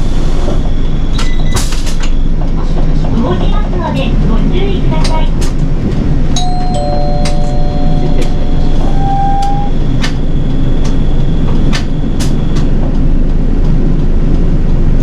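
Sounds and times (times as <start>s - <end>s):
bus engine rumble: 0.0s - 15.0s
brief electronic tones: 6.4s - 10.5s.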